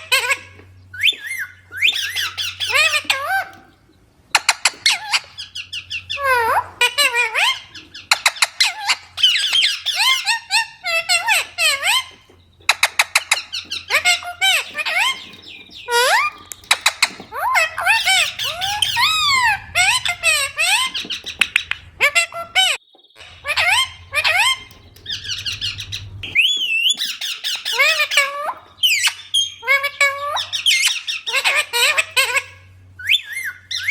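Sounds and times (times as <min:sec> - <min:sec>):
parrot squawking: 0:00.0 - 0:33.9
wavy whistled call: 0:07.4 - 0:32.0.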